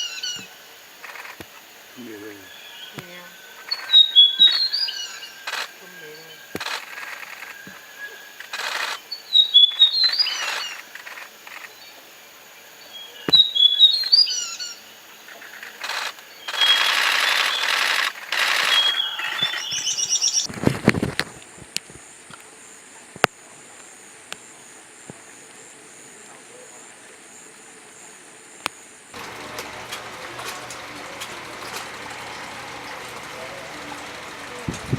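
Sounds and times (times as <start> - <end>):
bird chirping: 0.0 - 20.5
harsh hissing bird chatter: 0.0 - 20.5.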